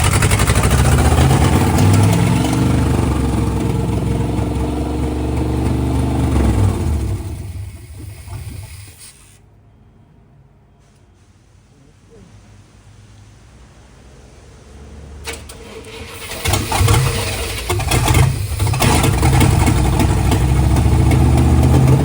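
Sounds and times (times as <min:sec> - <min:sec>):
pickup truck engine running: 0:00.0 - 0:08.9, 0:15.9 - 0:22.0.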